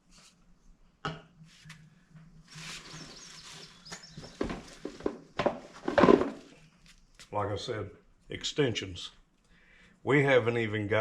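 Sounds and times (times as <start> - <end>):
rustling squeaky rub: 2.5 - 5.0.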